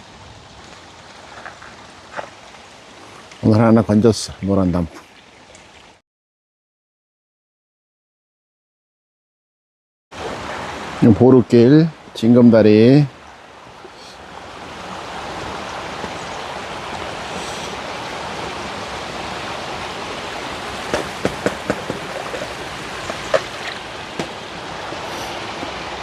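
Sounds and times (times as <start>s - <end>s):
stream water rushing: 0.0s - 6.0s, 10.2s - 26.0s
sharp knocks: 20.9s - 25.7s.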